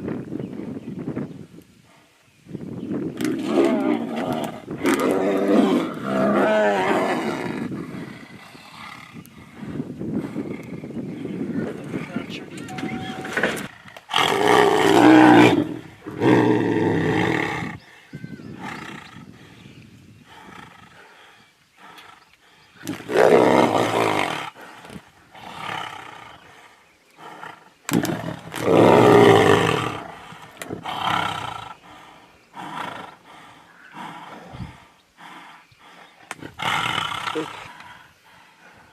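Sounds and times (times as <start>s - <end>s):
tigers roaring and snarling: 3.2s - 9.6s, 13.6s - 17.8s, 22.8s - 38.8s.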